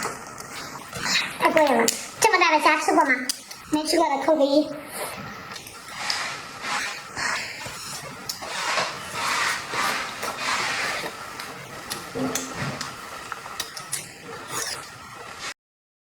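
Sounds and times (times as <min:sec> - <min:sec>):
person chewing and smacking: 0:06.8 - 0:15.0.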